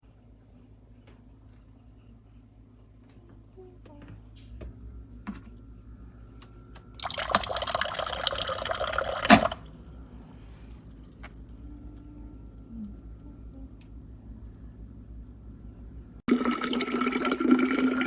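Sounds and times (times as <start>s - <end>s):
liquid pouring: 7.0s - 14.2s, 16.3s - 18.0s.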